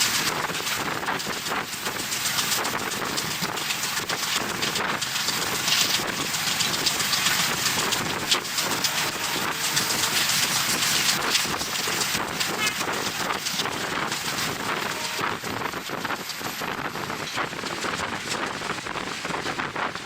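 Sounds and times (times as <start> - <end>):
train carriage rattling: 0.0 - 20.0
train wheels clattering on rails: 0.0 - 20.0
wind rushing over microphone: 0.0 - 20.0.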